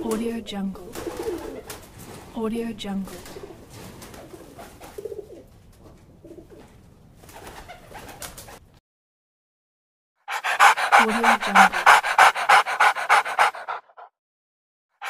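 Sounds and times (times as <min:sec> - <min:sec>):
pigeons cooing: 0:00.9 - 0:01.8, 0:03.2 - 0:05.5, 0:10.4 - 0:13.8
dog panting: 0:10.3 - 0:14.1.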